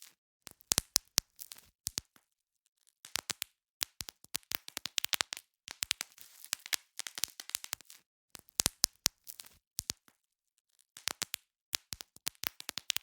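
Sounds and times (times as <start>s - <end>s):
bubble wrap popping: 3.0s - 10.2s, 11.0s - 13.0s
plastic crinkling: 5.8s - 8.0s.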